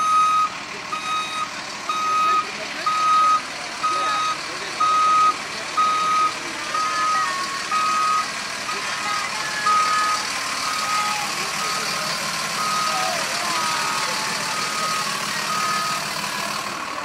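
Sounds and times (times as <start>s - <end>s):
vehicle reverse alarm beeping: 0.0s - 16.7s.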